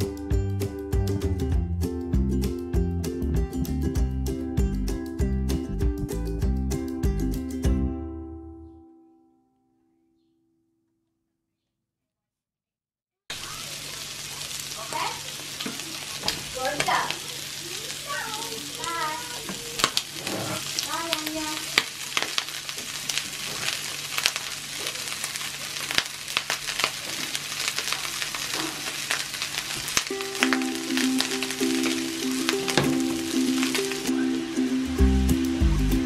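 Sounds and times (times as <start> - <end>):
food sizzling in a frying pan: 13.3 - 36.0.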